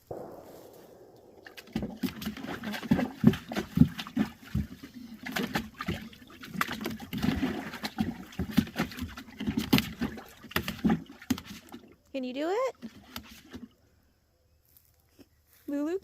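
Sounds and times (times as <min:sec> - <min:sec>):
animal splashing in water: 0:01.4 - 0:12.0.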